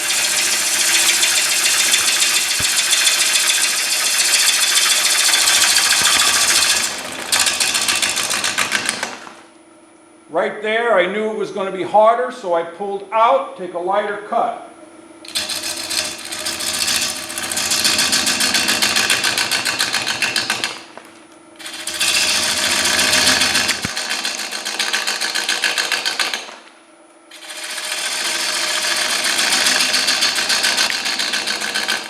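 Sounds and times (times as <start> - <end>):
gouge chattering on lathe: 0.0 - 9.2, 15.3 - 20.8, 21.6 - 26.5, 27.3 - 32.0.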